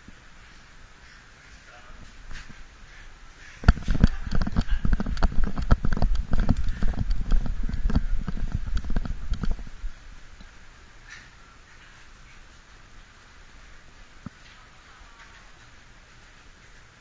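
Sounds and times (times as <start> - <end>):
camera knocks and thumps: 3.6 - 9.7.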